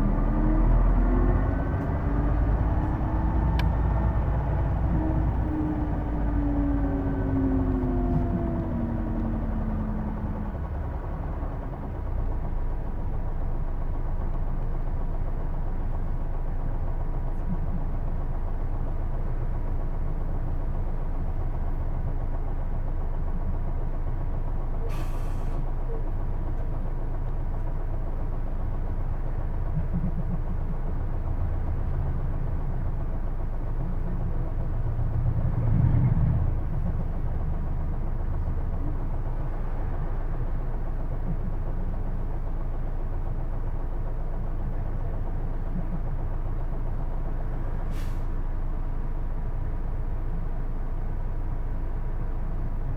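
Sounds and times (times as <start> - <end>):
bus engine rumble: 0.0 - 52.9
brief air hiss: 24.9 - 25.6, 47.9 - 48.3.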